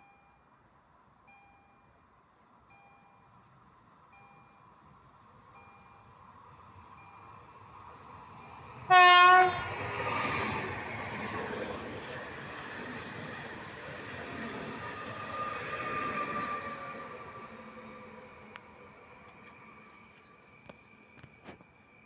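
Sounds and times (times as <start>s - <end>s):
train wheels rumbling on rails: 7.9s - 21.9s
train horn blast: 8.9s - 9.8s.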